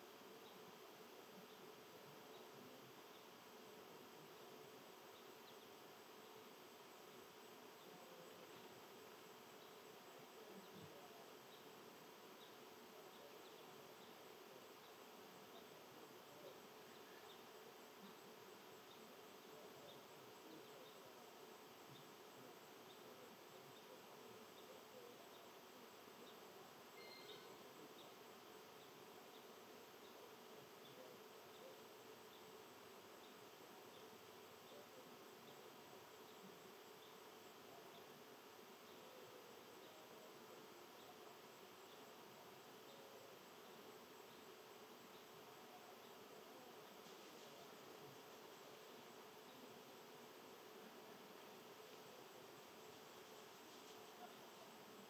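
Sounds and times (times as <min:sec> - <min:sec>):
low steady hiss: 0:00.0 - 0:55.0
insect chirps: 0:11.4 - 0:50.7.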